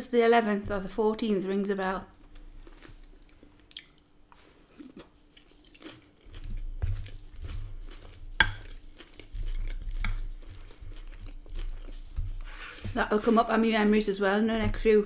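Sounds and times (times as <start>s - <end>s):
close-up chewing: 2.2s - 15.0s
wooden spoon scraping glass dish: 11.6s - 15.0s.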